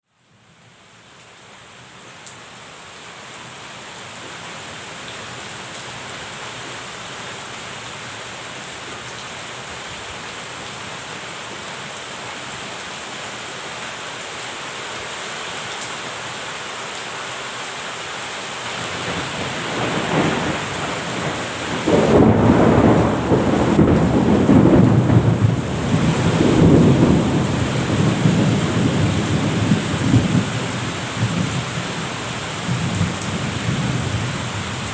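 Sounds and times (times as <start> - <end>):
steady rain: 0.1 - 34.9
thunder rumbling: 18.8 - 31.6.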